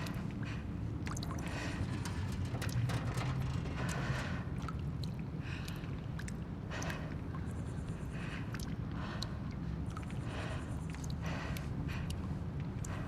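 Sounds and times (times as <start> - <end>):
steady low rumble: 1.3 - 5.8.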